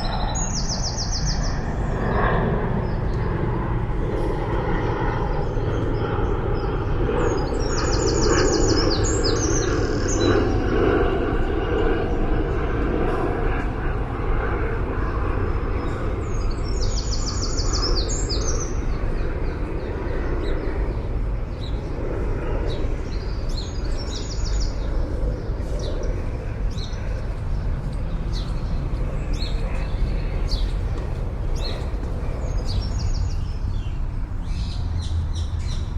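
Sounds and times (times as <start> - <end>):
city traffic rumble: 0.0 - 35.9.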